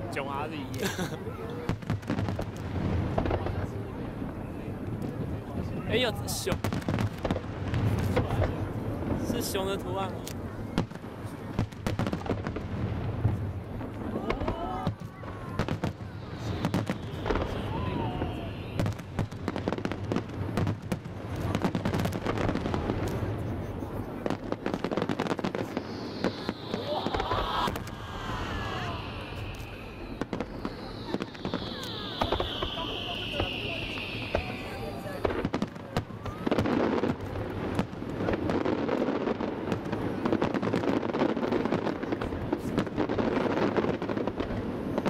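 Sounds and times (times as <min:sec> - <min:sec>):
fireworks bangs and crackling pops: 0:00.0 - 0:45.0
steady rumble: 0:24.6 - 0:35.4.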